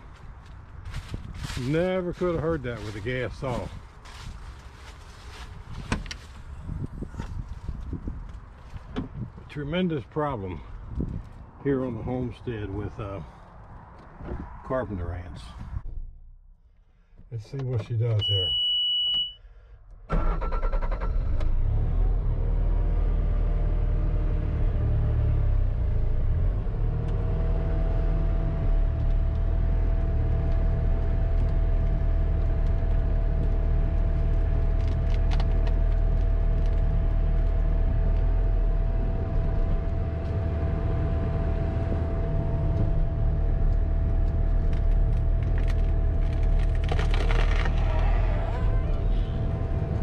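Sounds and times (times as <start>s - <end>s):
diesel engine under load: 20.1s - 50.0s
wood cracking and splintering: 44.2s - 48.6s.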